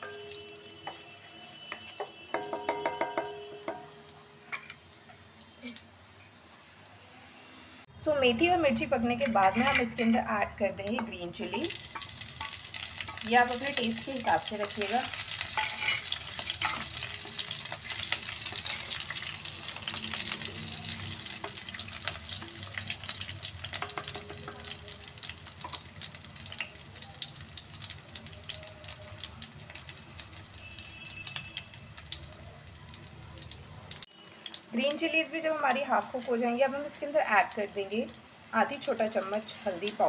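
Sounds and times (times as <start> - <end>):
chillies sizzling in hot oil: 0.0 - 3.6, 8.2 - 40.0
wooden spatula stirring: 15.0 - 19.2.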